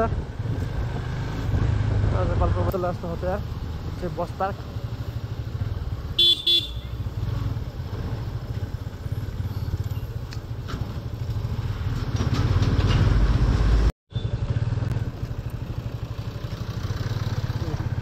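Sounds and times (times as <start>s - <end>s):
motorcycle engine running: 2.2s - 11.8s, 13.5s - 18.0s
vehicle horn beeps: 6.2s - 7.0s.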